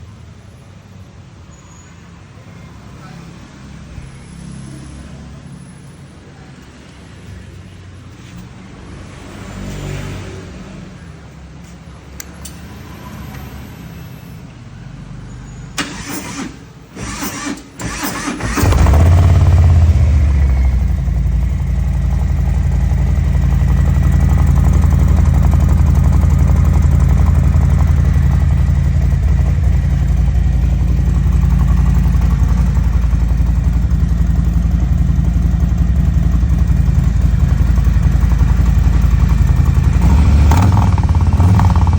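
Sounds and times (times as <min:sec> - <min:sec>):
motorcycle engine cranking: 0:15.8 - 0:41.9
motorcycle engine idling: 0:17.9 - 0:41.9.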